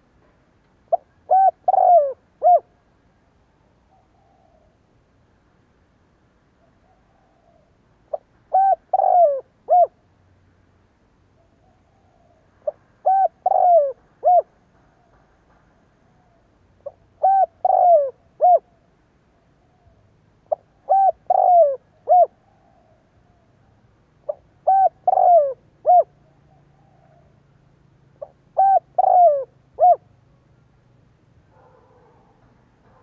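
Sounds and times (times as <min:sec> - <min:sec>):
dove cooing: 0:00.9 - 0:02.8, 0:03.9 - 0:04.8, 0:06.8 - 0:10.0, 0:11.4 - 0:15.3, 0:16.1 - 0:18.8, 0:19.6 - 0:23.6, 0:24.2 - 0:27.4, 0:28.2 - 0:30.2.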